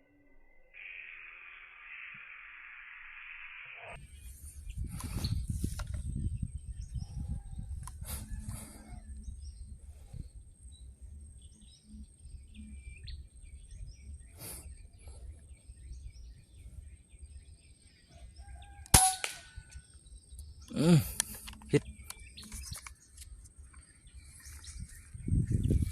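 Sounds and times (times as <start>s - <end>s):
birds chirping faintly: 0.4s - 25.9s
air rifle shot: 18.9s - 19.7s.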